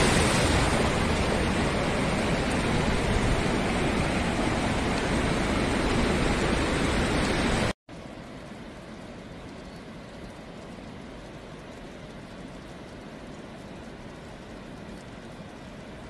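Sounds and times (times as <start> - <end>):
rushing floodwater: 0.0 - 9.0.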